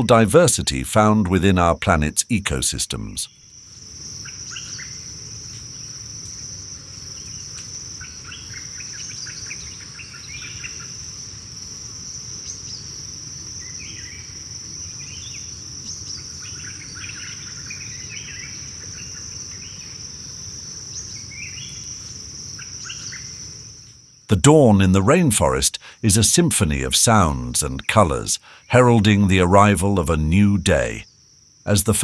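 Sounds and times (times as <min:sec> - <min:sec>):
high insect drone: 0:00.0 - 0:32.0.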